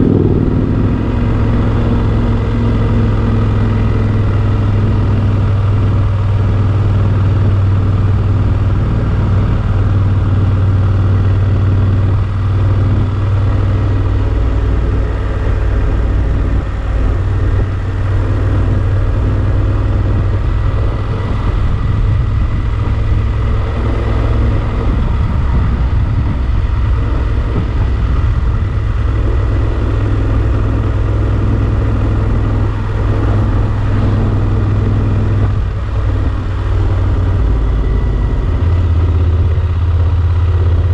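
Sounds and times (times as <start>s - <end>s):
motorcycle engine droning: 0.0s - 40.9s.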